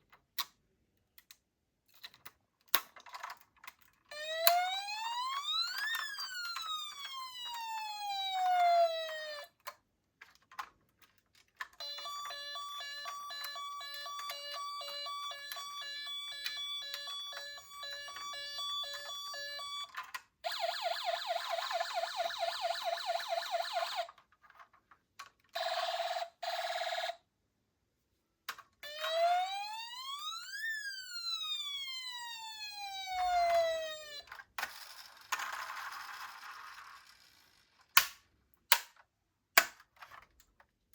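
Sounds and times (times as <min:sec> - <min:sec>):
toy police car sirens: 0:04.1 - 0:09.7, 0:11.6 - 0:24.2, 0:25.5 - 0:27.2, 0:28.8 - 0:37.8.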